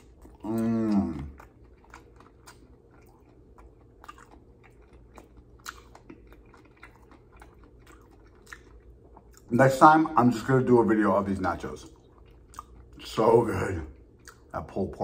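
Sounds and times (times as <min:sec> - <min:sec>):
crunchy chewing: 0:00.0 - 0:09.8, 0:11.2 - 0:15.0
person humming: 0:00.4 - 0:01.3.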